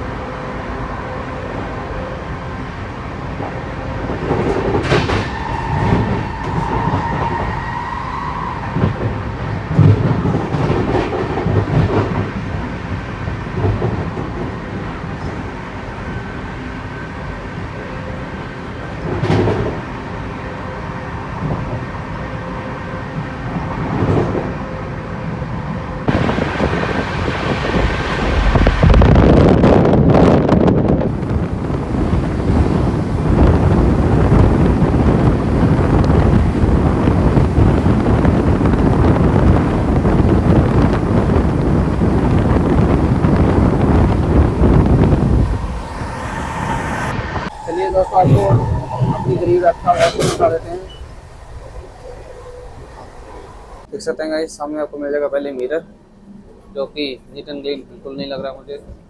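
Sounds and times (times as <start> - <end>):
train wheels rumbling on rails: 1.4 - 16.4, 17.7 - 20.4, 26.0 - 53.9
train knocks: 4.1 - 7.7, 8.6 - 12.4.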